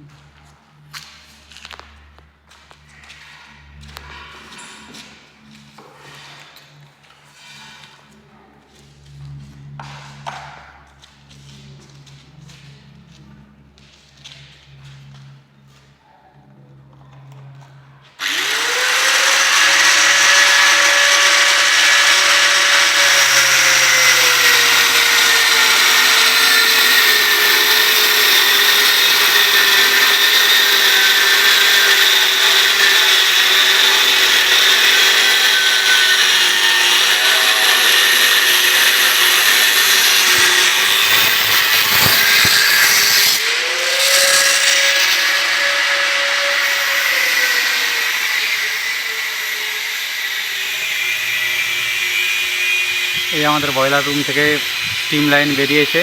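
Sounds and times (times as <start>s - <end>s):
electric power tool running: 18.2s - 56.0s.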